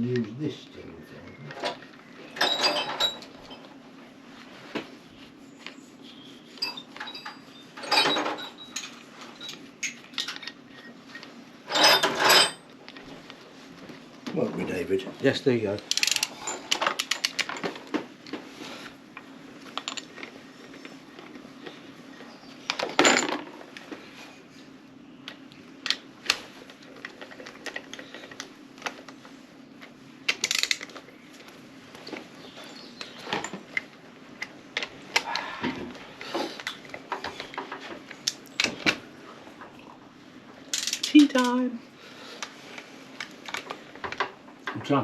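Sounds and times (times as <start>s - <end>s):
hand tools clinking on metal: 2.4s - 3.7s, 6.6s - 10.9s, 11.7s - 12.6s.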